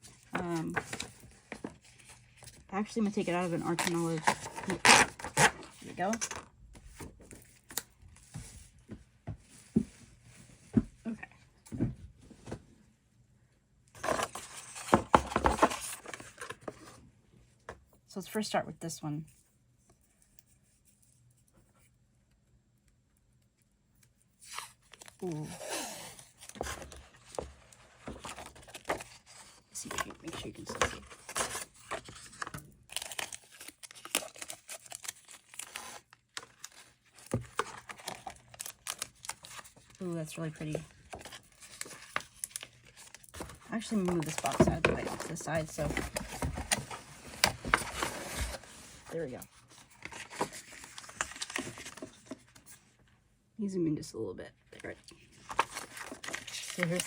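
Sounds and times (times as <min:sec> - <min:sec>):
paper rustling and crinkling: 0:00.0 - 0:08.7, 0:14.0 - 0:17.0, 0:24.3 - 0:52.9, 0:54.8 - 0:57.0
tape peeled and torn: 0:03.6 - 0:06.5, 0:31.1 - 0:39.8.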